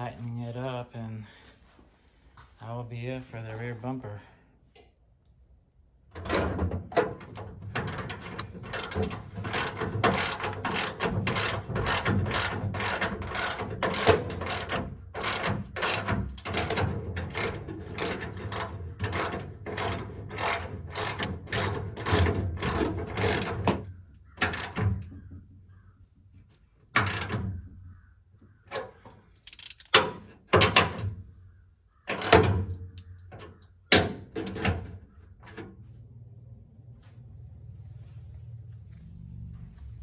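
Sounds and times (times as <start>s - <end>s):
ratchet wrench clicking: 7.8s - 23.6s, 24.4s - 24.8s, 27.0s - 27.3s, 29.4s - 30.0s, 32.1s - 33.1s.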